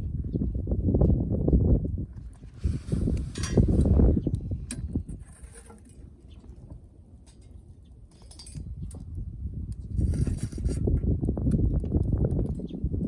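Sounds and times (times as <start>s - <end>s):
wind buffeting microphone: 0.0s - 13.0s
light clicks and clinks: 7.2s - 10.7s.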